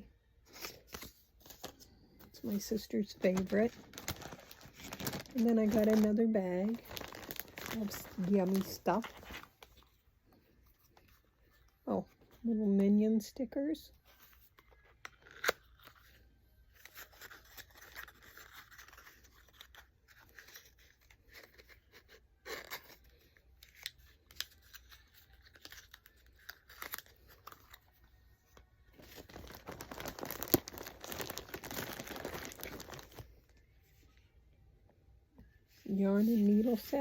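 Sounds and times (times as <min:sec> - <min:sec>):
packaging rustling and crinkling: 0:00.5 - 0:11.7, 0:14.1 - 0:33.7
packaging tearing: 0:03.2 - 0:09.8, 0:15.0 - 0:16.2, 0:16.8 - 0:23.0, 0:23.6 - 0:27.9, 0:29.0 - 0:33.3.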